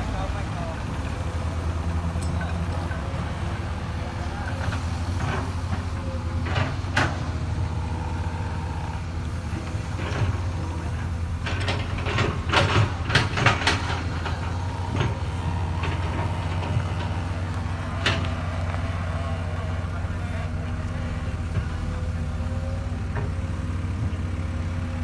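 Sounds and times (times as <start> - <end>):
diesel engine running: 0.0 - 25.0
machine knocks and clanks: 11.3 - 18.7.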